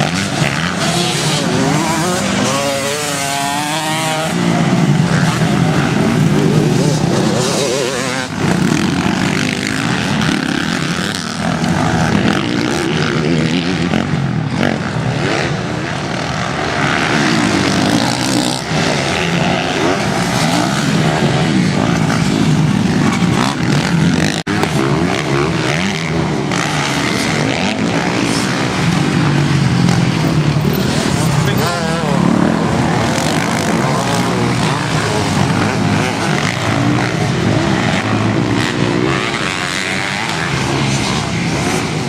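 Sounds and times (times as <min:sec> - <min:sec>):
motocross bike engines revving: 0:00.0 - 0:42.0.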